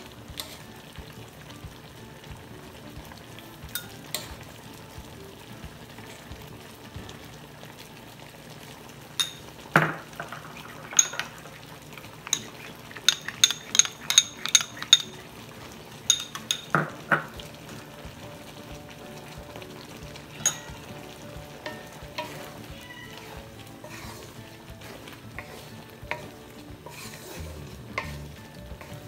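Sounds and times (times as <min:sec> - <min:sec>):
faint frying sizzle: 0:00.0 - 0:29.0
metal utensil clinking on pan: 0:00.4 - 0:00.6, 0:03.7 - 0:04.4, 0:09.2 - 0:15.3, 0:16.0 - 0:17.4, 0:20.3 - 0:28.2.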